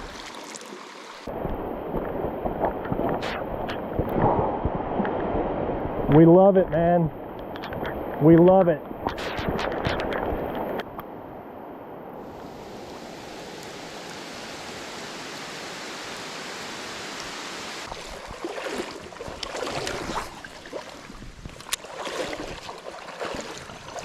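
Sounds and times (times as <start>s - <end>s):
river water rushing: 0.0s - 2.6s, 12.2s - 24.0s
water sloshing splashes: 17.8s - 24.0s.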